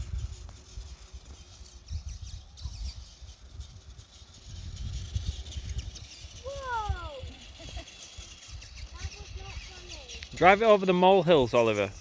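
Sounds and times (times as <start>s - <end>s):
small birds chirping: 0.0s - 12.0s
wind buffeting microphone: 0.0s - 12.0s.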